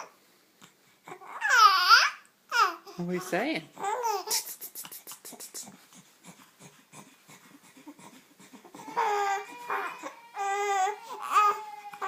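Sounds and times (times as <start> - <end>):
baby cooing: 1.0 - 3.0, 3.8 - 4.6, 5.3 - 12.0
baby panting: 3.8 - 12.0.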